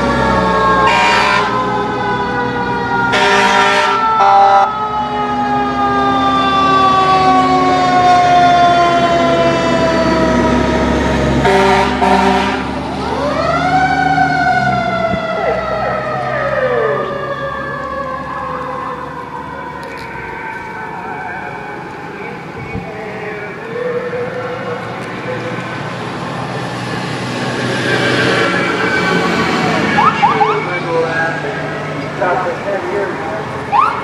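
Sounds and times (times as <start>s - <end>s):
fire truck sirens wailing: 0.0s - 34.0s
air horn blasts: 0.8s - 1.6s, 3.1s - 4.7s, 11.4s - 12.8s.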